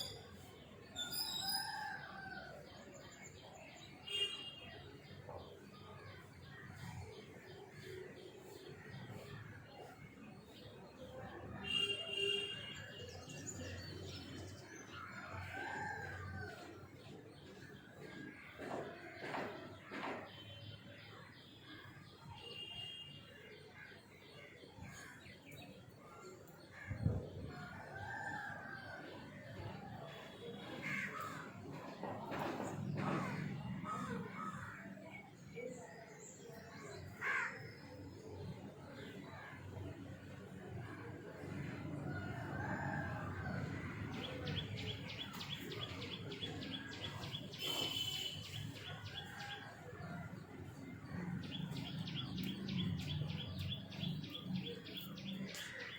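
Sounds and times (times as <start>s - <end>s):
birds calling: 43.6s - 55.9s.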